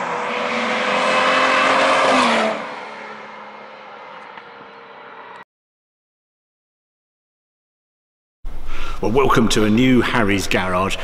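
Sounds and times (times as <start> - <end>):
sports car engine passing by: 0.0 - 5.4.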